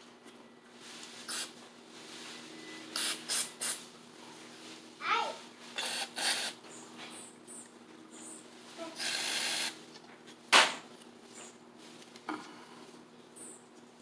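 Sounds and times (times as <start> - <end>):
aerosol spray hisses: 1.3 - 1.6, 3.0 - 3.8, 5.8 - 6.6, 9.0 - 9.8.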